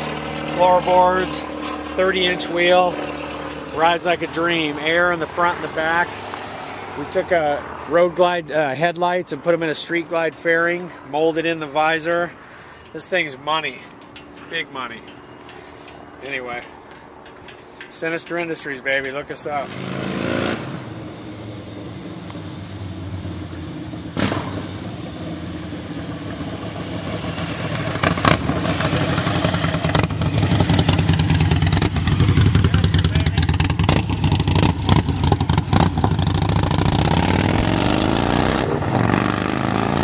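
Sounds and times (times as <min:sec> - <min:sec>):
motorcycle engine running: 0:00.0 - 0:05.3, 0:20.9 - 0:40.0.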